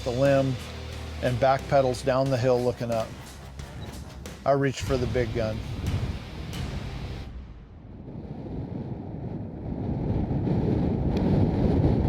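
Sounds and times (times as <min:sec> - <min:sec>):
wind buffeting microphone: 0:04.8 - 0:12.0.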